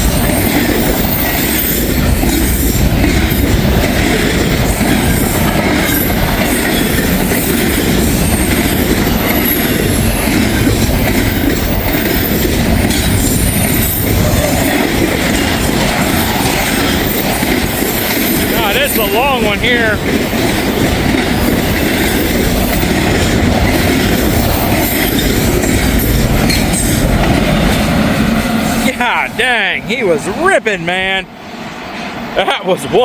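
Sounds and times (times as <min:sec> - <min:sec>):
freight train cars rolling past: 0:00.0 - 0:33.0
wheel squeal: 0:04.7 - 0:19.3.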